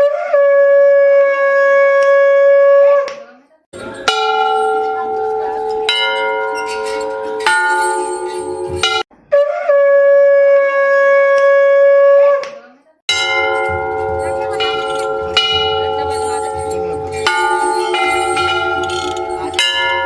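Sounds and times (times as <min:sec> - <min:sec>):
bells ringing: 0:03.8 - 0:09.1, 0:13.1 - 0:20.0.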